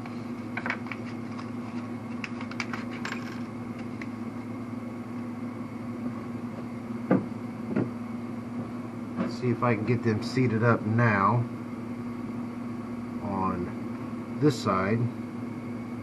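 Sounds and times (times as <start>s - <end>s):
steady background hum: 0.0s - 16.0s
loud knocks: 7.1s - 7.9s.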